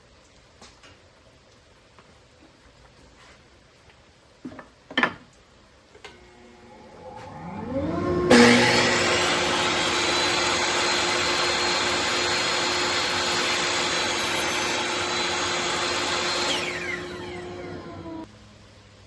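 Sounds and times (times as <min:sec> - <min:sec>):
table saw whirring: 0:06.1 - 0:18.3.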